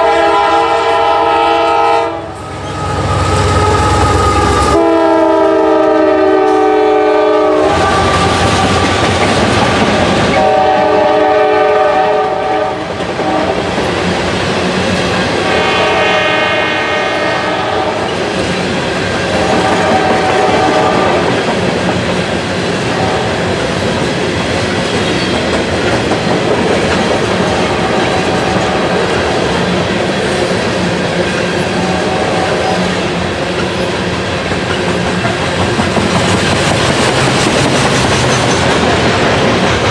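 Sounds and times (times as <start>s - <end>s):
train air horn blasts: 0.0s - 13.7s, 15.4s - 18.1s, 19.3s - 21.4s, 22.9s - 23.4s, 31.8s - 33.0s
train wheels clattering over rails: 7.6s - 15.8s, 17.9s - 39.9s.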